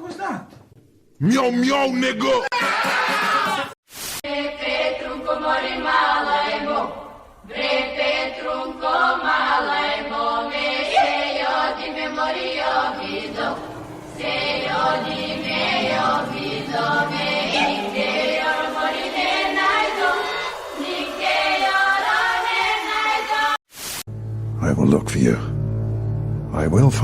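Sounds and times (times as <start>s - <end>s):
group of voices chanting: 2.6s - 23.6s.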